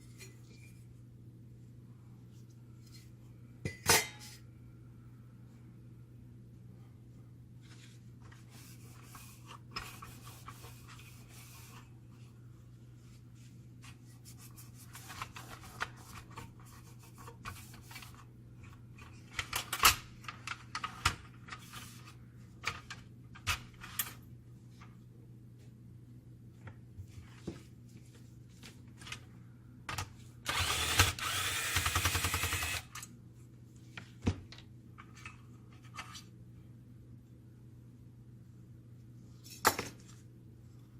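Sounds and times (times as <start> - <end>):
steady low hum: 0.0 - 19.4.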